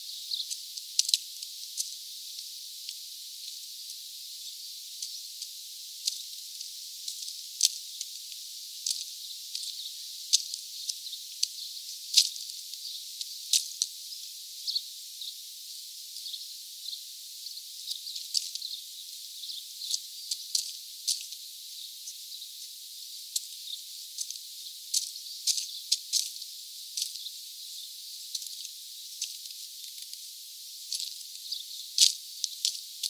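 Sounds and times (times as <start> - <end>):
small birds chirping: 0.0 - 1.1, 8.8 - 15.4, 16.1 - 30.2, 30.8 - 33.0
steady high hiss: 0.0 - 33.0.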